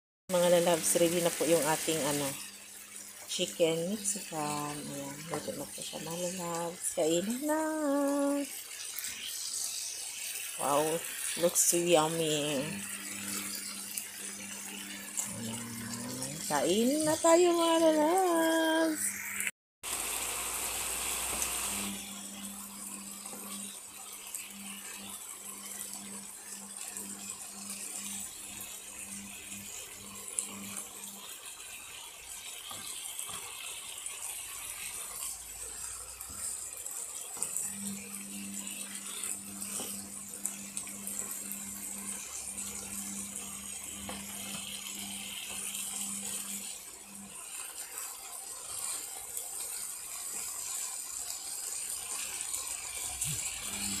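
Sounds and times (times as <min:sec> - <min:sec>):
food sizzling in a frying pan: 0:00.3 - 0:54.0
spatula stirring in pan: 0:07.1 - 0:17.4, 0:29.4 - 0:54.0.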